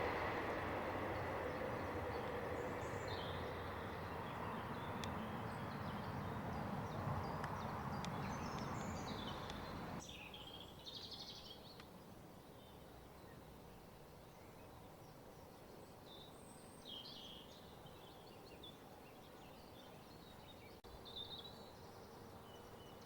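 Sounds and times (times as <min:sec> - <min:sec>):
train rumbling past: 0:00.0 - 0:10.0
birds chirping: 0:00.0 - 0:11.9.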